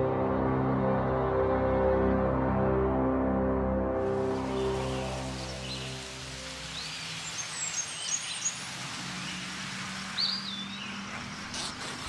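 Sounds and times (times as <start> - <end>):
soundtrack music: 0.0 - 6.4
steady outdoor hiss: 3.4 - 12.0
small birds chirping: 4.5 - 12.0.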